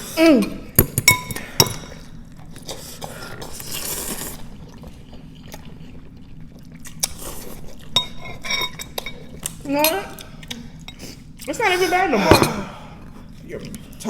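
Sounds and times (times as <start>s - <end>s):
person chewing noodles: 1.1s - 11.6s.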